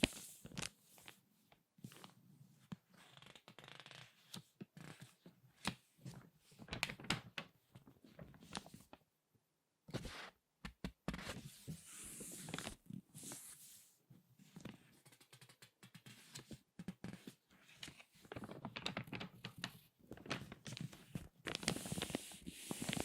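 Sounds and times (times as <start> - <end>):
magazine pages crinkling and rustling: 3.0 - 9.0, 12.2 - 12.8, 14.6 - 23.0.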